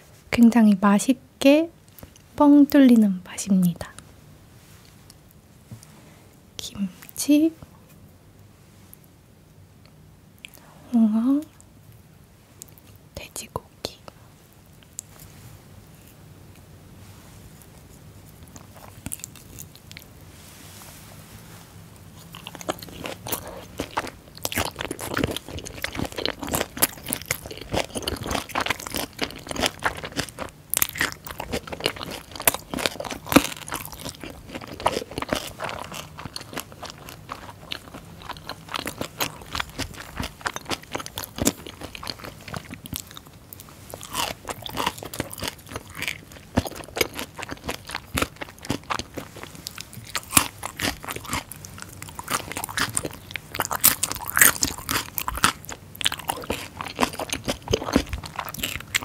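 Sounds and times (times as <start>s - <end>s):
cartilage crunching while chewing: 17.6s - 20.2s, 22.0s - 59.0s.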